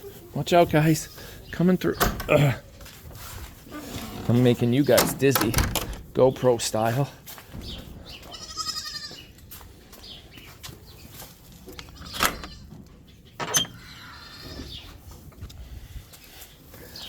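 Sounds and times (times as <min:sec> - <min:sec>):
goat kid bleating: 0:08.2 - 0:09.3, 0:14.0 - 0:14.6.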